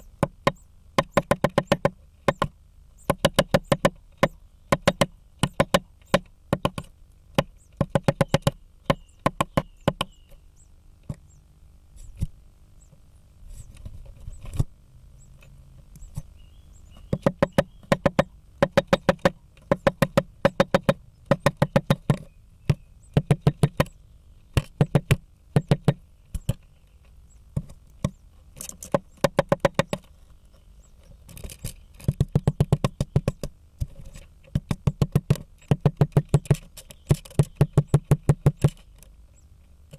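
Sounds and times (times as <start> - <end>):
woodpecker knocking on wood: 0.0 - 10.4, 16.9 - 26.7, 27.5 - 30.2, 30.9 - 39.1.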